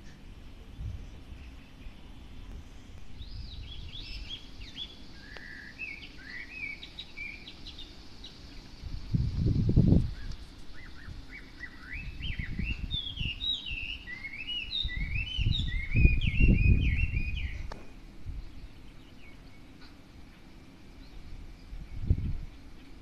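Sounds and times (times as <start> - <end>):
songbird whistling song: 3.2 - 8.8, 10.0 - 20.4.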